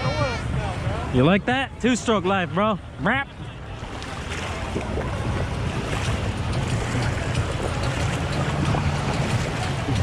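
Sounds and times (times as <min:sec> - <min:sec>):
jet ski engine droning: 0:03.8 - 0:10.0.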